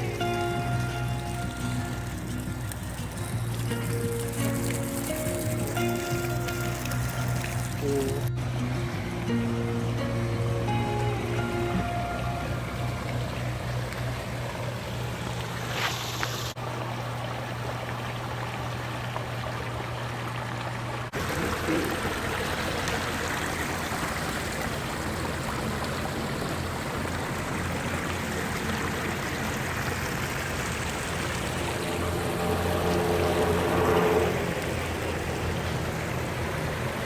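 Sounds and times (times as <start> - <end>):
water splashing down waterfall: 0.0 - 8.7, 10.5 - 37.0.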